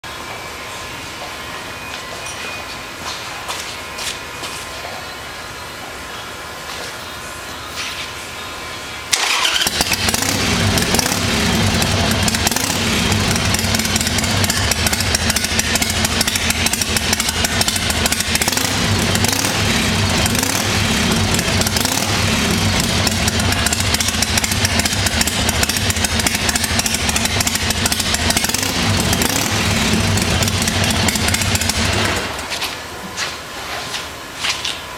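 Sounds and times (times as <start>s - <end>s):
motorcycle engine running: 9.1s - 32.9s.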